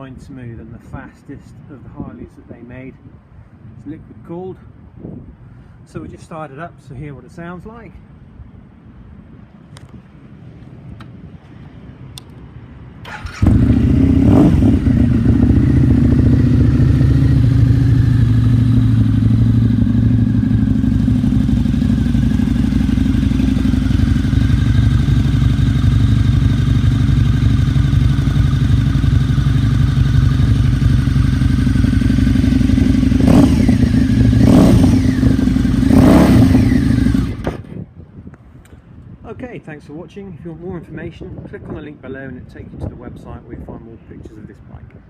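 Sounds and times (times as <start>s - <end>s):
motorcycle engine idling and revving: 13.0s - 37.9s.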